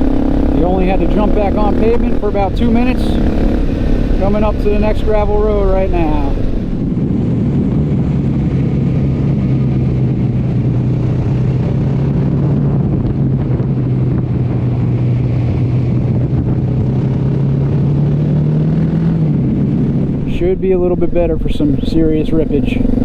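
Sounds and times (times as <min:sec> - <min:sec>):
motorcycle engine cruising: 0:00.0 - 0:23.0.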